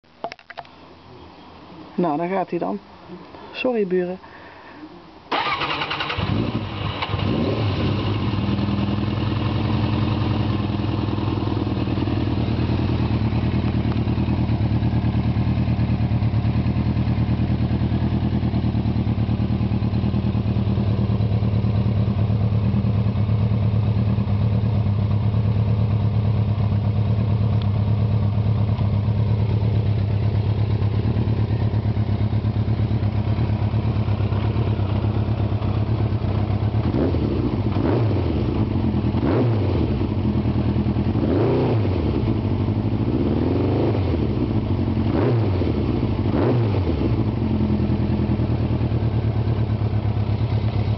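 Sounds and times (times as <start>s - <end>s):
motorcycle engine idling: 5.3s - 50.9s.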